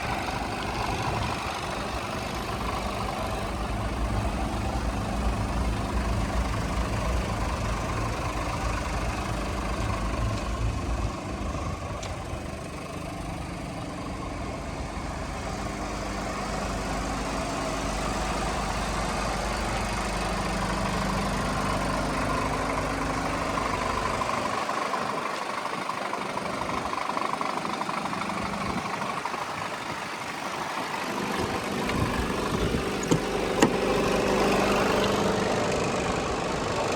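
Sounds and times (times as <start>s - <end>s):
diesel truck engine idling: 0.0s - 36.9s.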